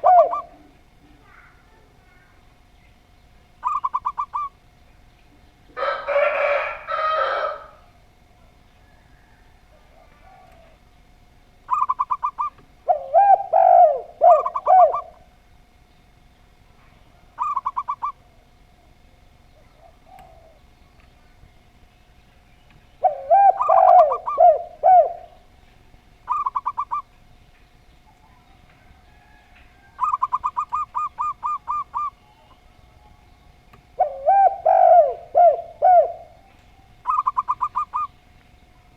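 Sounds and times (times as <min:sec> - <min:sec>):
dove rattling trill: 0:00.0 - 0:00.6, 0:03.4 - 0:04.9, 0:05.8 - 0:08.0, 0:10.0 - 0:16.6, 0:17.3 - 0:18.4, 0:19.8 - 0:38.9
dove cooing: 0:00.0 - 0:02.4, 0:03.6 - 0:04.6, 0:05.8 - 0:08.0, 0:08.8 - 0:10.9, 0:11.6 - 0:15.4, 0:17.1 - 0:19.0, 0:19.6 - 0:20.8, 0:23.0 - 0:25.6, 0:26.2 - 0:27.1, 0:28.1 - 0:38.9.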